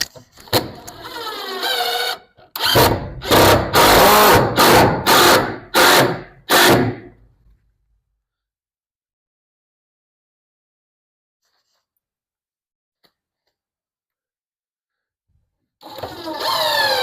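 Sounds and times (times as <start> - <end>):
power drill whirring: 0.6 - 7.0, 15.8 - 17.0.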